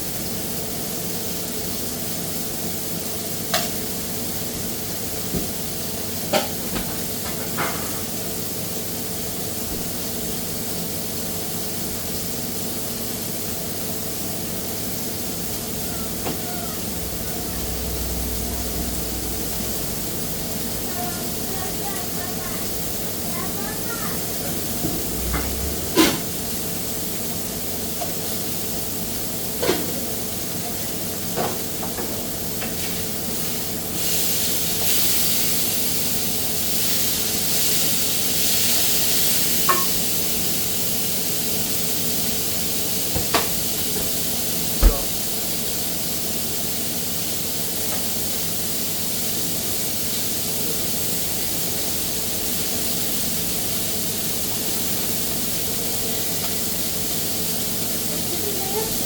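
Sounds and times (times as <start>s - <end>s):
low machine hum: 15.4s - 23.3s.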